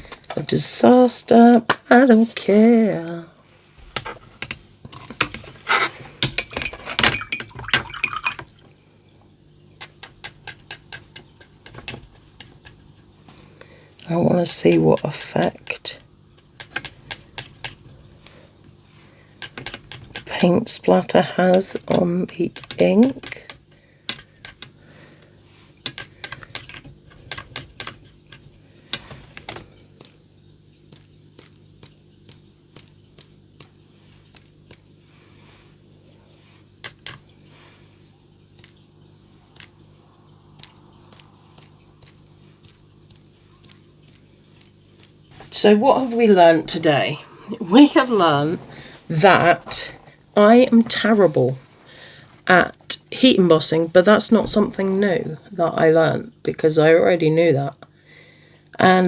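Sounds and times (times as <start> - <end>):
paintbrush clicks and wet scrapes: 0.0 - 52.4
brush tapping: 3.6 - 51.8
paintbrush tapping: 9.8 - 13.4, 30.8 - 35.7, 36.4 - 49.0.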